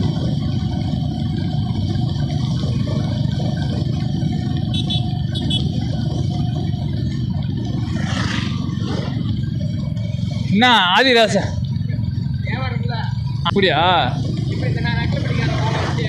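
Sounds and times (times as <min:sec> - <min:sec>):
motorcycle running: 0:00.0 - 0:16.0
wind rumble: 0:00.0 - 0:16.0.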